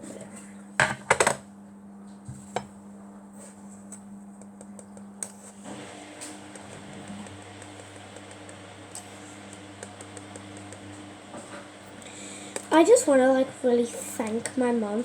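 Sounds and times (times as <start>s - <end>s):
low steady hum: 0.0s - 15.0s
dishes knocking and clinking: 0.8s - 1.4s.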